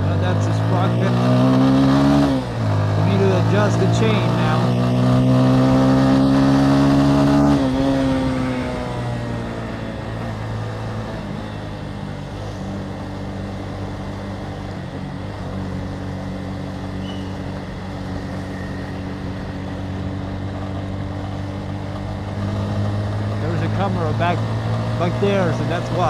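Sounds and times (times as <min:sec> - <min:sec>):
motorcycle engine running: 0:00.0 - 0:26.0
road and wind noise: 0:00.0 - 0:26.0.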